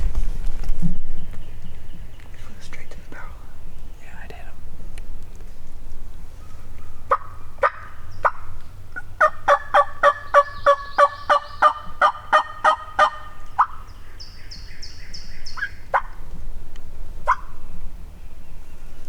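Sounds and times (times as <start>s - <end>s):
wild turkey yelps: 6.5s - 13.9s, 14.5s - 16.2s, 17.2s - 17.6s.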